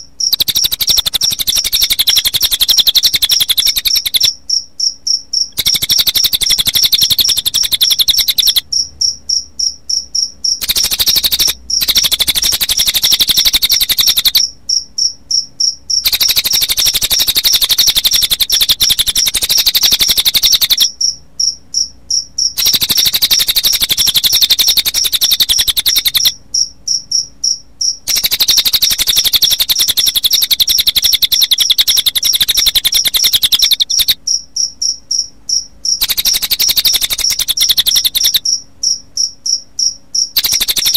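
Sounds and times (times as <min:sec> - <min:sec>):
bird trilling: 0:00.0 - 0:04.4, 0:05.4 - 0:08.7, 0:10.6 - 0:14.5, 0:16.0 - 0:21.0, 0:22.6 - 0:26.4, 0:28.1 - 0:34.2, 0:36.0 - 0:38.6, 0:40.4 - 0:40.9
crickets chirping: 0:00.0 - 0:40.9.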